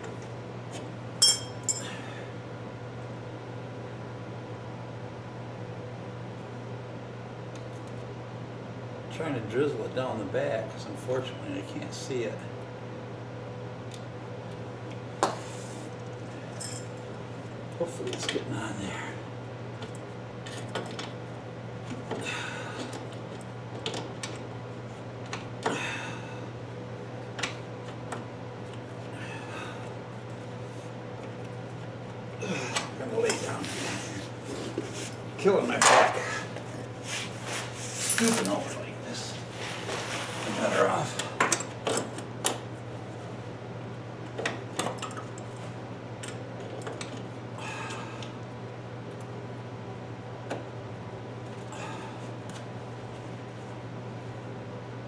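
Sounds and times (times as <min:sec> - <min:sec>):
tools clinking against metal: 0:01.2 - 0:01.9, 0:16.6 - 0:16.9.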